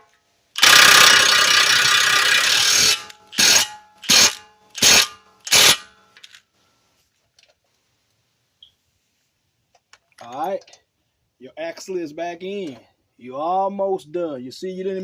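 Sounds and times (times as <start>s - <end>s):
power wrench tightening a nut: 0.6s - 5.9s.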